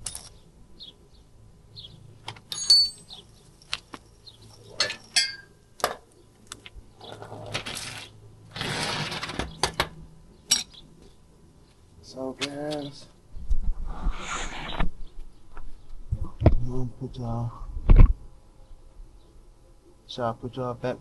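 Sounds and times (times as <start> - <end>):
metal tools clinking and knocking: 0.0 - 0.4, 2.3 - 3.7, 4.5 - 6.0, 10.5 - 10.8.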